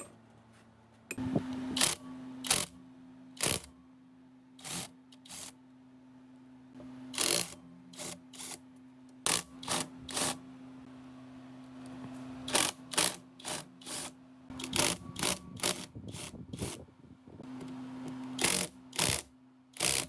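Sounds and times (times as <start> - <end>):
small electric motor humming: 3.4 - 3.7, 4.6 - 5.6, 12.5 - 16.9, 17.6 - 20.0.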